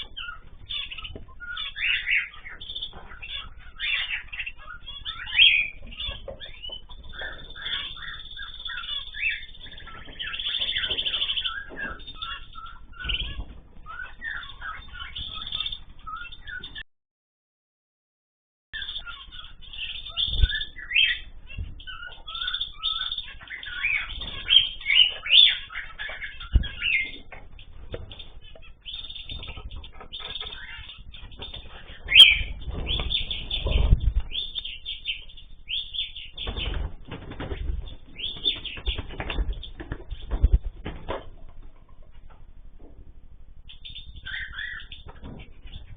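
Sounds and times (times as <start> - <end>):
cage birds chirping: 0.0 - 16.8, 18.8 - 45.9
wings flapping: 21.7 - 34.7, 36.4 - 42.4.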